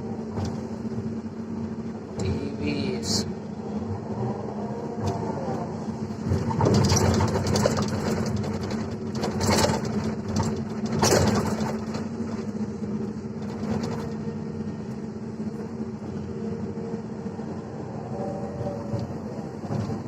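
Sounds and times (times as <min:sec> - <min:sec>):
diesel engine running: 0:00.0 - 0:20.0
excavator bucket knocking and scraping: 0:06.3 - 0:12.4.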